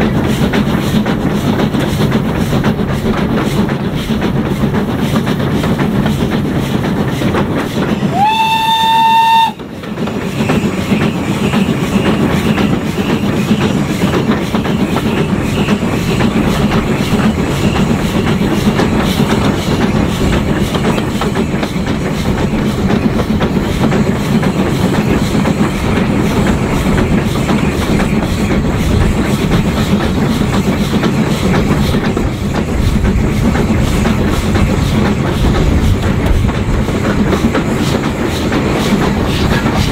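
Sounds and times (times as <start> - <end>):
train wheels clattering on rail: 0.0 - 39.9
steam whistle blast: 8.1 - 9.6.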